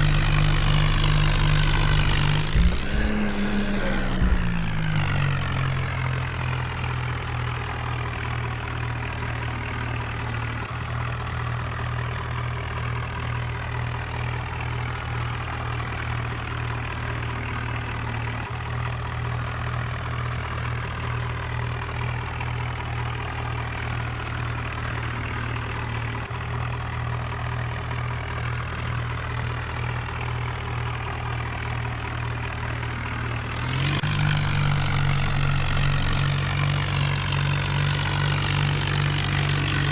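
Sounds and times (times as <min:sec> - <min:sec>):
tractor engine idling: 0:00.0 - 0:06.6, 0:33.4 - 0:39.9.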